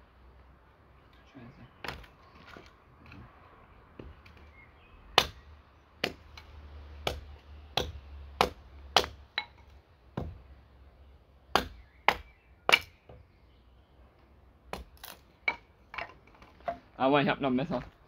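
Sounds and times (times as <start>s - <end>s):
axe chopping wood: 1.8s - 2.2s, 5.1s - 10.4s, 11.5s - 13.2s, 14.7s - 16.8s.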